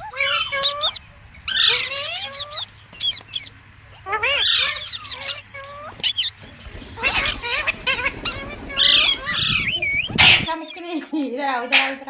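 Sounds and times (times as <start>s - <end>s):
parakeets chattering squawks: 0.0s - 12.0s.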